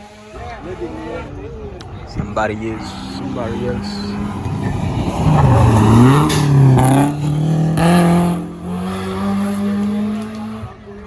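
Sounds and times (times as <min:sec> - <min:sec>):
rally car engine accelerating past: 0:00.0 - 0:11.0.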